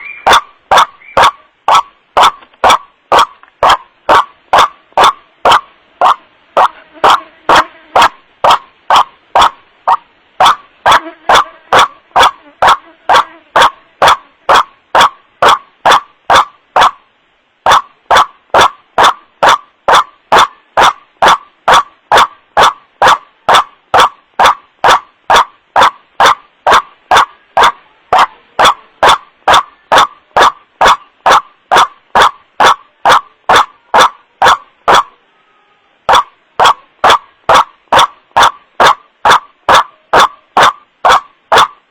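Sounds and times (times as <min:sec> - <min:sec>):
waterhen wak-wak call: 0:00.0 - 0:35.2, 0:36.1 - 0:41.8.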